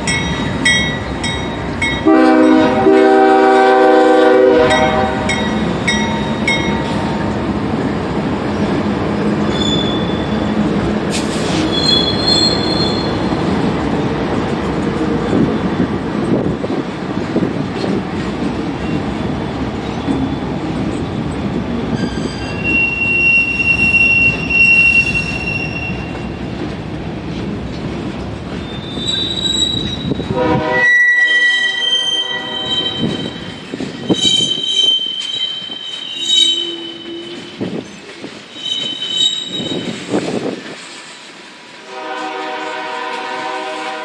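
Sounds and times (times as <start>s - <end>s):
wheels rumbling and clattering on rail: 0.0s - 44.0s
train wheels squealing: 9.5s - 10.5s, 11.1s - 13.4s, 21.9s - 26.4s, 28.5s - 40.2s.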